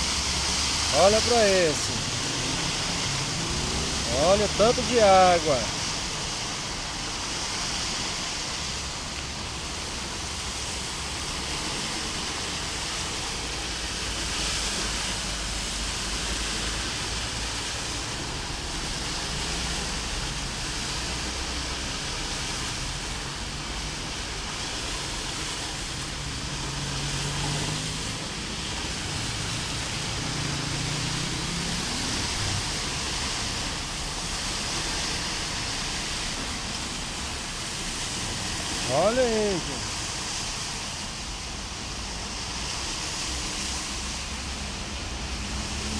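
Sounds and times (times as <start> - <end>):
heavy rain and rushing floodwater: 0.0 - 45.9.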